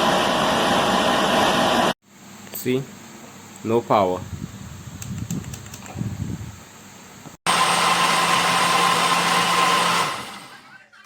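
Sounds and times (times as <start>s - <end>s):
blender motor running: 7.5s - 10.6s.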